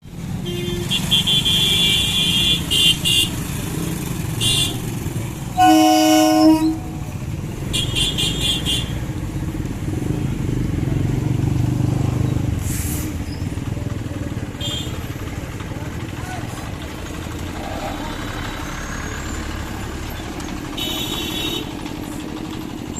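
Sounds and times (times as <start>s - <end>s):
car engines running: 0.0s - 22.9s
low horn blast: 5.5s - 7.1s.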